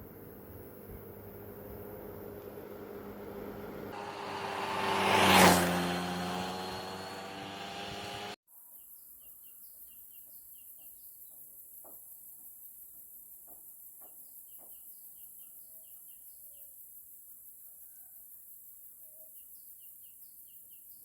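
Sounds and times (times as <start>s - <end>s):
passing vehicle: 0.0s - 8.4s
high insect-like hiss: 8.5s - 21.0s
small bird chirping: 8.6s - 21.0s.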